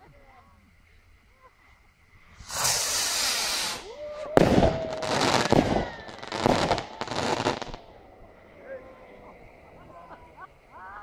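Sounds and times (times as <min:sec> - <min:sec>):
firework hiss: 0:00.7 - 0:08.6
crackling bursts: 0:02.1 - 0:08.2
firework bang: 0:02.4 - 0:07.9.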